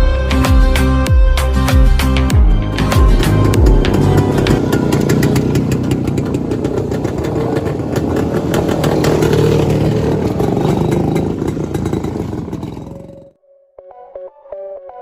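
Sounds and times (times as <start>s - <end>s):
vehicle engine running: 2.6s - 13.3s.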